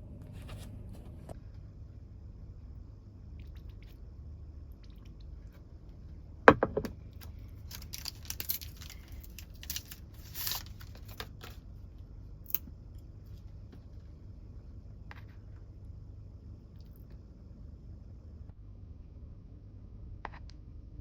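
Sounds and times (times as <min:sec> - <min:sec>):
low steady rumble: 0:00.0 - 0:21.0
food packaging crinkling: 0:07.2 - 0:11.6.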